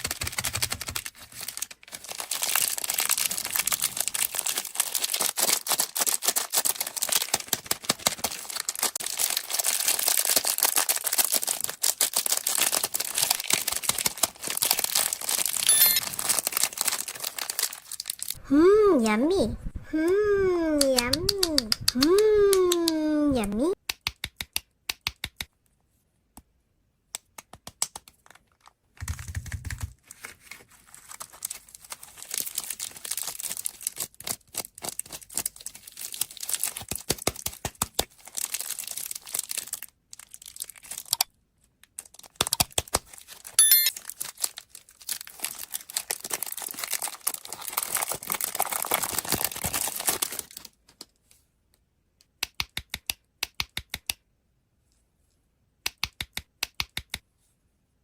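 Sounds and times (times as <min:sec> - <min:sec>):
candy wrappers crinkling: 0:00.0 - 0:18.4, 0:30.0 - 0:51.2.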